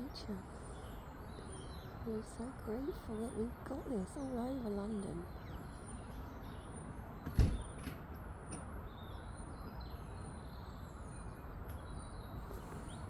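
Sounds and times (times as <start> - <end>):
city traffic rumble: 0.0 - 13.0
sharp thump: 7.3 - 7.7.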